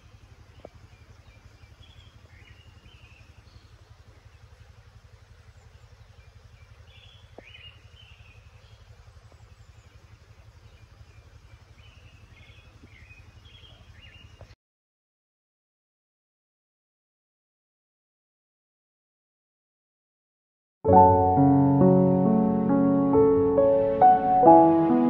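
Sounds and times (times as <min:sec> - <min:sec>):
small birds chirping: 0:00.0 - 0:14.6
steady low rumble: 0:20.9 - 0:25.0.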